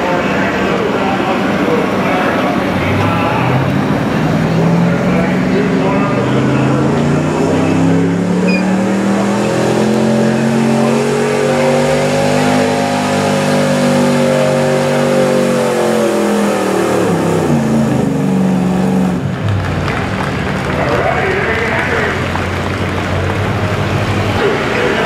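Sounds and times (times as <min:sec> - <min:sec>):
pickup truck engine at full throttle: 0:00.0 - 0:25.0.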